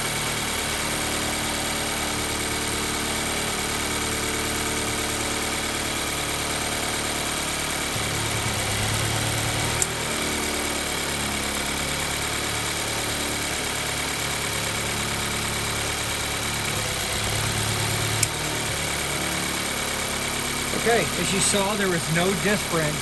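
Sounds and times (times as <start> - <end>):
car engine idling: 0.0 - 23.0
sharp clicks: 18.2 - 18.4.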